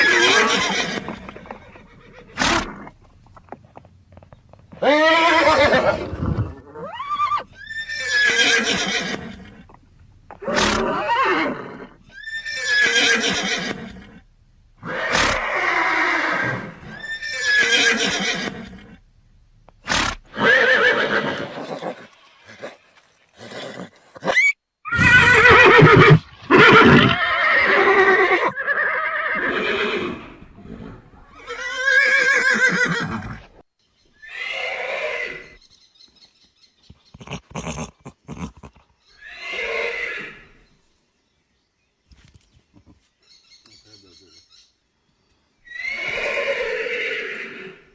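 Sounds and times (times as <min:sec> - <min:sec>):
horse neighing: 0:00.0 - 0:03.0, 0:04.7 - 0:19.0, 0:19.8 - 0:33.6, 0:34.2 - 0:35.6, 0:37.1 - 0:40.6, 0:45.7 - 0:47.9.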